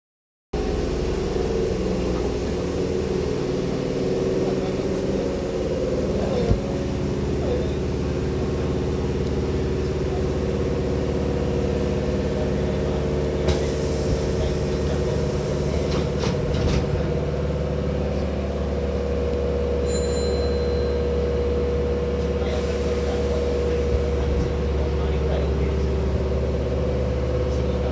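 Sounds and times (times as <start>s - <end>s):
electric train hum: 0.6s - 27.9s
air hiss of train doors: 13.4s - 16.9s, 22.5s - 24.1s
train doors knocking: 13.4s - 17.2s.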